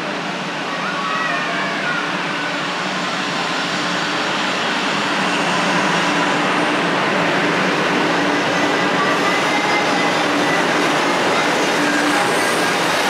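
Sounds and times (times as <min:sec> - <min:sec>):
train electric hum: 0:00.0 - 0:13.0
train wheels rolling: 0:02.8 - 0:13.0.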